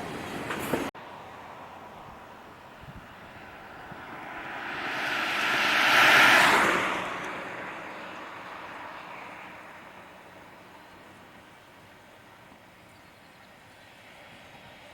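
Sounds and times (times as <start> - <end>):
vehicle passing by: 0.0 - 11.5.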